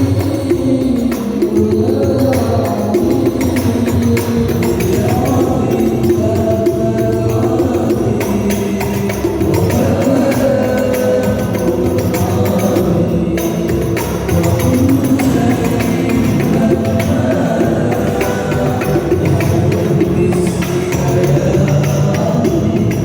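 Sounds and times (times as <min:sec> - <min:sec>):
frame drums with jingles: 0:00.0 - 0:23.0
group singing devotional song: 0:00.0 - 0:23.0.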